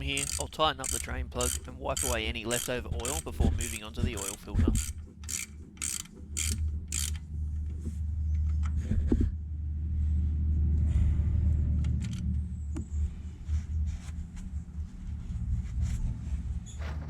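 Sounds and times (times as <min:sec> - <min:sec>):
ratchet wrench clicking: 0:00.0 - 0:07.2
low rumble: 0:06.6 - 0:17.0.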